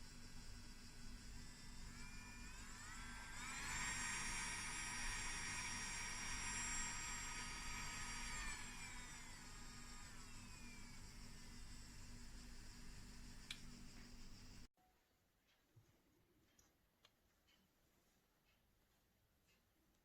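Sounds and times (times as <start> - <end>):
electric nail drill whining: 0.0 - 14.7.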